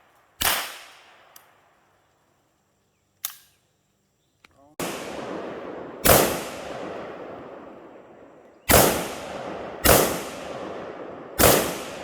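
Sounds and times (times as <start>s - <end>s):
gunshots with rolling echo: 4.8s - 12.0s.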